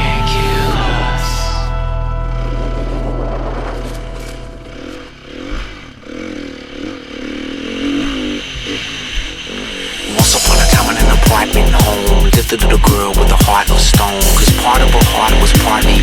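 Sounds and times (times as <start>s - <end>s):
music: 0.0s - 4.8s, 10.1s - 16.0s
bass-heavy electronic music: 0.0s - 6.0s, 9.6s - 16.0s
dirt bike engine revving: 0.0s - 16.0s.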